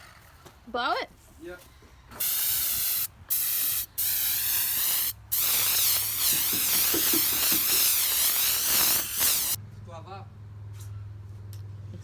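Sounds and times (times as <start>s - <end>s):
air blow gun hissing: 2.2s - 9.6s.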